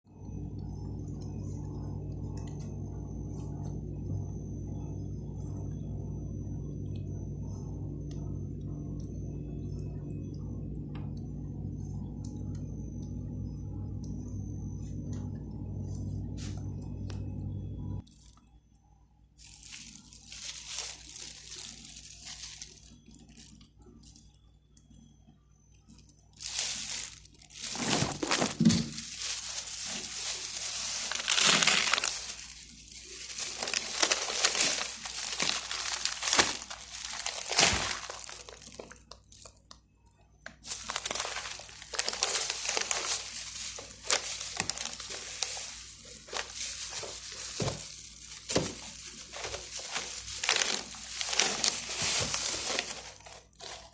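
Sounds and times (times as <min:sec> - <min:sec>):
plastic bags crinkling: 0:18.0 - 0:18.5, 0:19.4 - 0:24.3, 0:25.9 - 0:39.8, 0:40.6 - 0:53.9.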